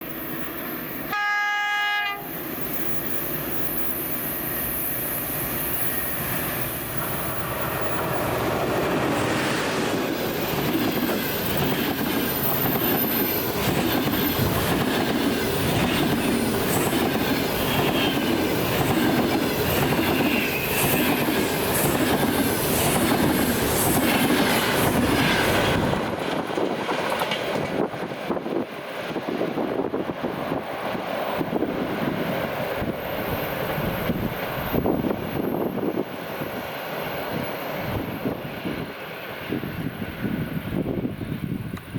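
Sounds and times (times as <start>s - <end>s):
train passing at speed: 0.0s - 41.9s
locomotive horn blast: 1.1s - 2.4s.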